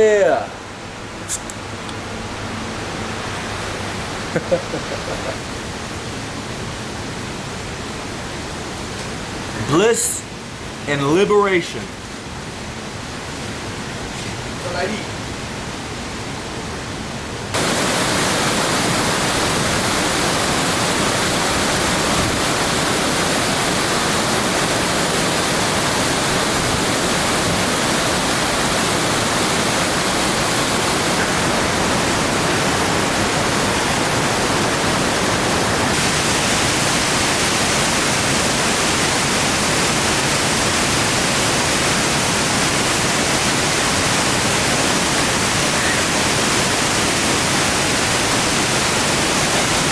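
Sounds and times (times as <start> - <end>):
waterfall rushing: 17.6 - 49.9.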